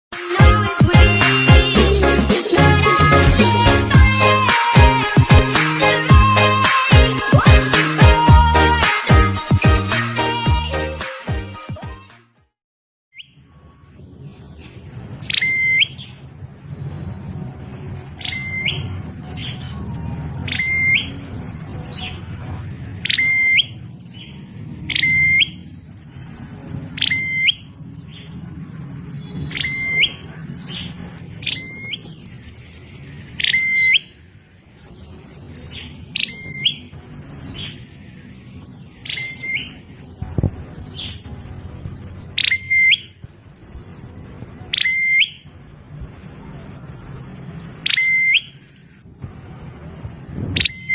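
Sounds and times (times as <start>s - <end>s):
high bird twittering: 15.0s - 16.2s, 17.0s - 22.2s, 23.0s - 34.2s, 34.8s - 37.9s, 38.6s - 41.4s, 42.3s - 45.5s, 47.2s - 48.8s, 50.4s - 50.9s
low rumble: 39.8s - 44.7s.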